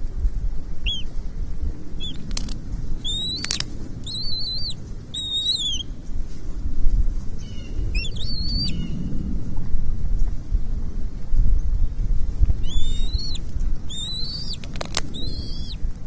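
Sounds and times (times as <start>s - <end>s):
low rumble: 0.0s - 16.0s
eagle whistled calls: 0.8s - 1.1s, 2.0s - 2.2s, 3.0s - 6.0s, 7.4s - 9.0s, 12.6s - 15.8s
eagle chittering notes: 3.0s - 6.0s, 7.6s - 9.0s, 12.6s - 15.8s.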